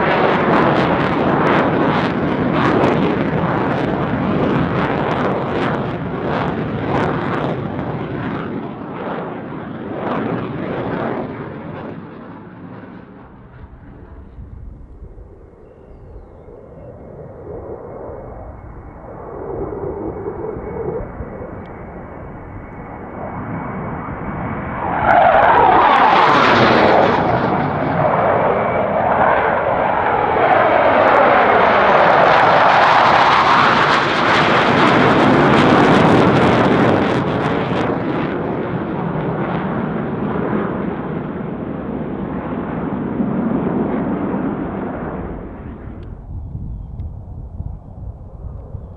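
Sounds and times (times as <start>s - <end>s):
jet flying past: 0.0s - 48.9s.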